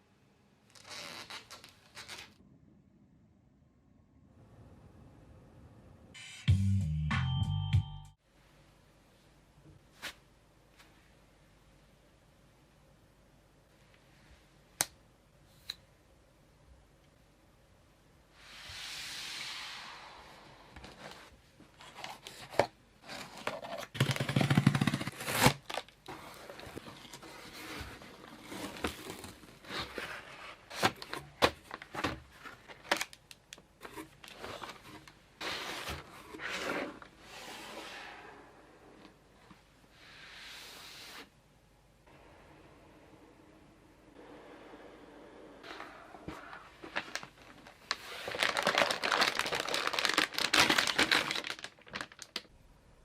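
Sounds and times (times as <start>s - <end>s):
cardboard scraping and crinkling: 20.9s - 33.0s, 33.8s - 38.2s, 45.6s - 51.6s
tape tearing: 23.4s - 26.0s.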